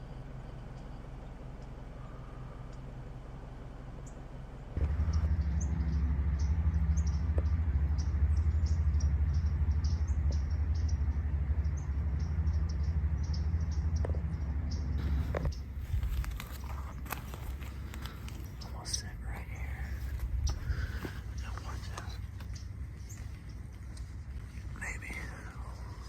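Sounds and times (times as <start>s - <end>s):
loud low rumble: 0.0s - 26.0s
small birds chipping: 0.0s - 26.0s.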